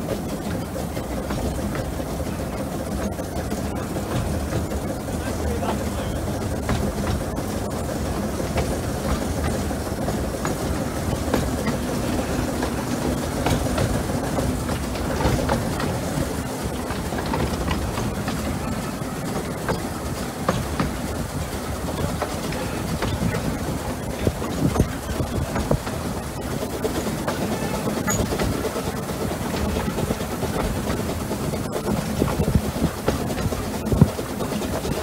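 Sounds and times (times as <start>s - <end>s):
locomotive engine drone: 0.0s - 35.0s
wheels rumbling on rail: 0.0s - 35.0s.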